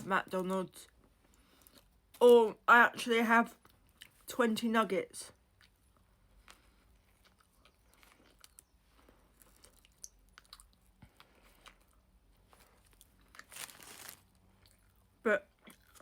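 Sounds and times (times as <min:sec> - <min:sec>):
chewing and mouth clicks: 0:03.6 - 0:04.3, 0:05.4 - 0:13.5, 0:15.6 - 0:16.0
sandwich crunch: 0:05.4 - 0:16.0.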